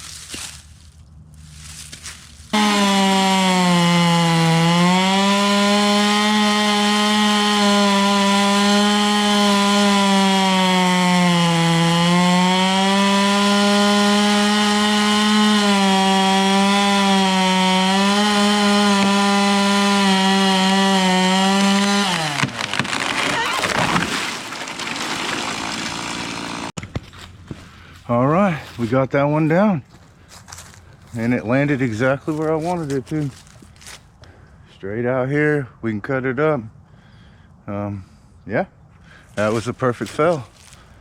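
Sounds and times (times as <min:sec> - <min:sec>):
chainsaw cutting wood: 0:02.5 - 0:27.0.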